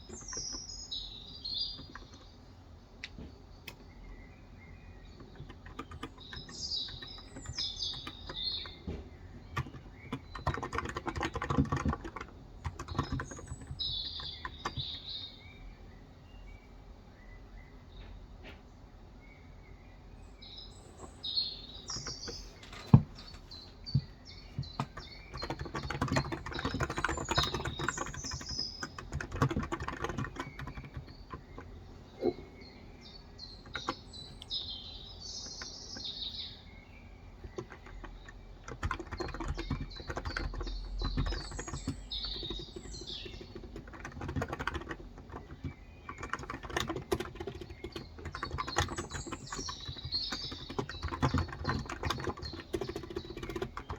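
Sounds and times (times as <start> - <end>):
birds chirping: 0.0 - 53.9
keyboard key clicks: 5.2 - 15.0, 21.9 - 32.4, 37.4 - 53.9.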